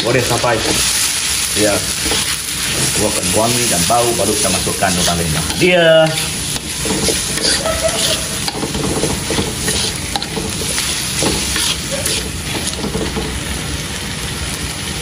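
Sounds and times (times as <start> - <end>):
spatula scraping a wok: 0.0 - 13.4
paste sizzling in hot oil: 0.0 - 15.0.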